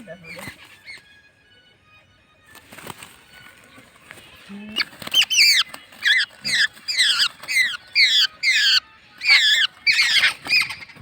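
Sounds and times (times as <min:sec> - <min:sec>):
birds squawking harshly: 0:04.7 - 0:11.0.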